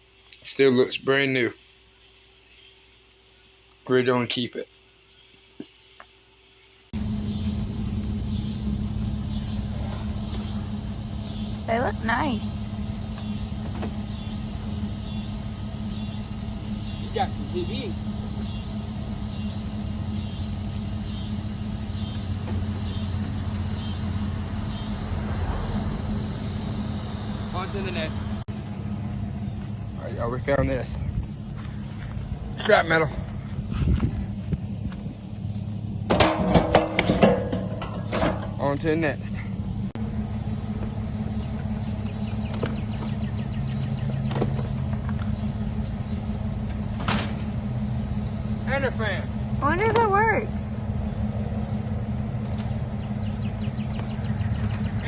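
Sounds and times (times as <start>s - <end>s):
road rumble: 0.0s - 55.0s
vehicle engine running: 0.0s - 55.0s
knocks and rattles: 36.1s - 38.8s.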